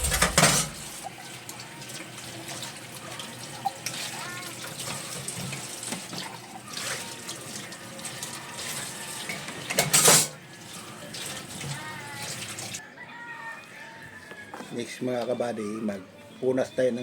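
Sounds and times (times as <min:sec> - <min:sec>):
dishes splashing and clattering: 0:00.0 - 0:12.8
kitchen tap running: 0:00.0 - 0:12.8.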